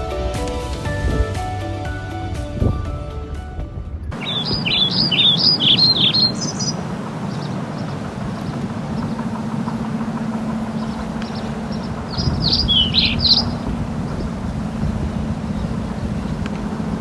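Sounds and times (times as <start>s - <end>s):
boat engine running steadily: 4.1s - 17.0s
bird giving sharp high calls: 4.2s - 17.0s.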